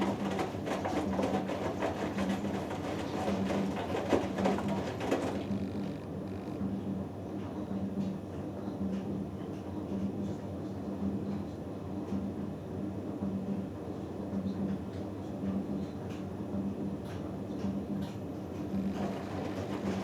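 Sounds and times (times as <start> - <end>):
faint knocks from tumbling load: 0.0 - 6.6
washing machine humming: 0.0 - 9.2, 9.8 - 20.0.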